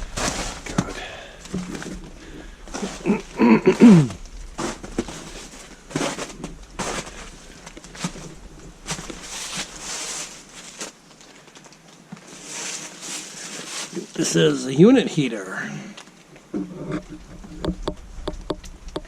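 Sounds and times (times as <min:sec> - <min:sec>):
footsteps crunching over debris: 0:00.0 - 0:15.2.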